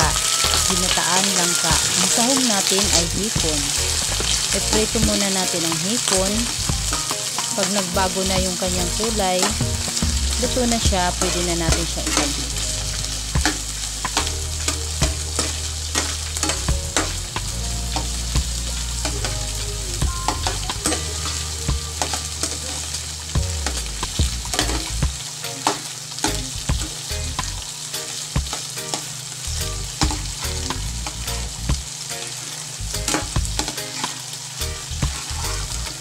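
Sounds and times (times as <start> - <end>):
shrimp sizzling in frying pan: 0.0 - 36.0
metal spatula scraping pan: 10.9 - 17.2, 35.1 - 36.0.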